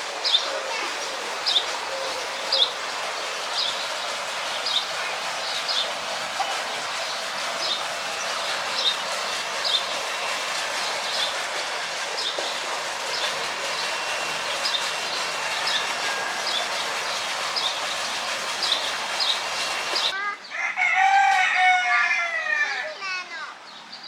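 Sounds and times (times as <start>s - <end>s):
steady hiss: 0.0s - 20.1s
bird chirping: 13.1s - 20.1s.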